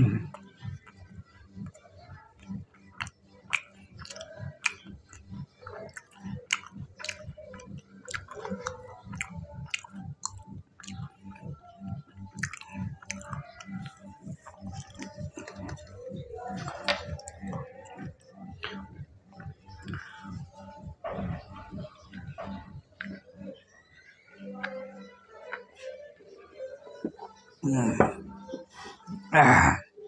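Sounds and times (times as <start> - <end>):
person chewing crisp food: 5.8 - 11.1, 12.4 - 15.8.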